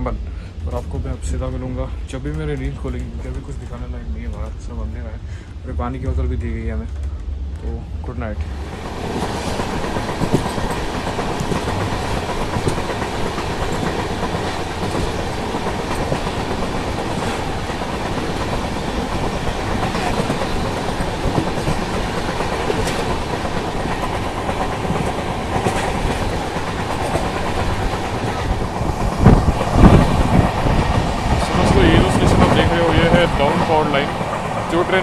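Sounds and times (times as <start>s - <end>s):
train wheels rumbling on rails: 0.0s - 35.0s
wheels clicking over rail joints: 8.6s - 35.0s.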